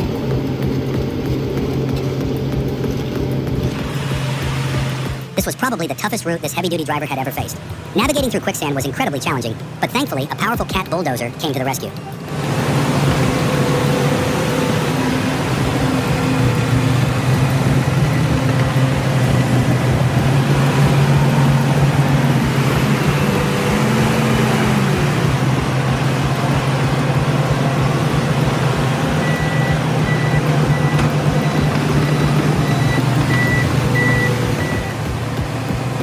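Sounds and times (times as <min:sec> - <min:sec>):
heavy diesel engines running: 0:00.0 - 0:36.0
reversing alarm beeping: 0:10.3 - 0:35.2.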